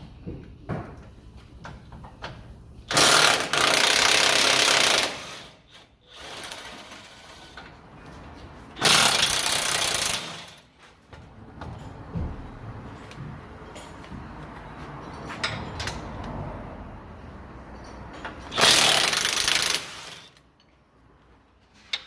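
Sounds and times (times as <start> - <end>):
power wrench running: 2.9 - 7.5, 8.8 - 10.6, 18.5 - 20.4.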